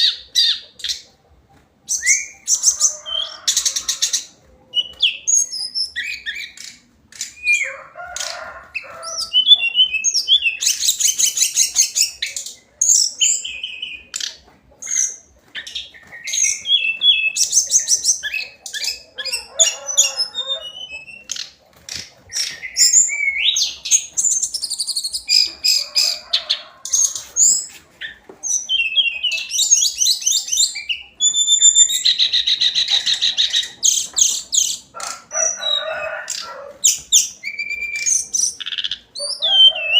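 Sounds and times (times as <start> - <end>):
bird singing high trills: 28.5 - 34.8, 36.8 - 39.9.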